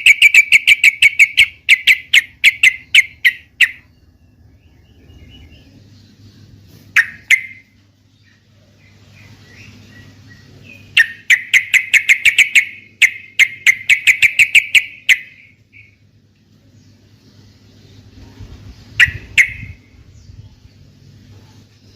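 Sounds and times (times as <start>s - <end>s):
bird chattering notes: 0.0s - 4.2s, 6.9s - 7.8s, 9.3s - 16.0s, 18.8s - 20.1s
bulbul calling: 0.0s - 4.2s, 4.9s - 7.8s, 9.0s - 16.0s, 18.8s - 20.5s.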